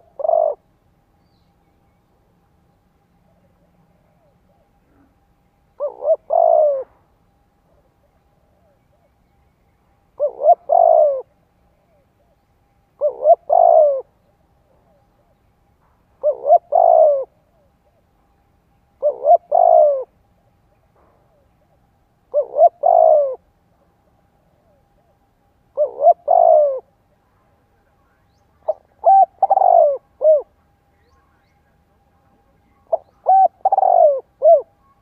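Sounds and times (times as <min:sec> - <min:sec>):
dove cooing: 0:00.0 - 0:00.7, 0:03.2 - 0:09.2, 0:10.1 - 0:12.4, 0:13.0 - 0:15.4, 0:16.1 - 0:18.1, 0:19.0 - 0:20.2, 0:21.0 - 0:23.5, 0:24.4 - 0:27.0, 0:28.6 - 0:31.1, 0:32.3 - 0:35.0.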